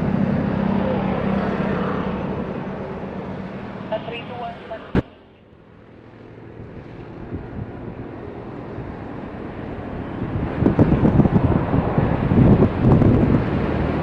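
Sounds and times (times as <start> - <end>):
jet engines rumbling: 0.0 - 14.0
wind on microphone: 6.6 - 14.0.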